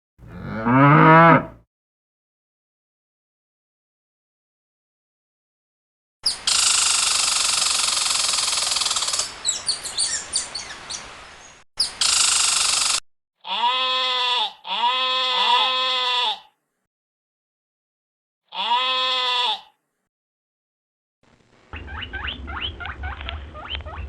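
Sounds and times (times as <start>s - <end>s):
sheep bleating: 13.4s - 16.5s, 18.5s - 19.8s.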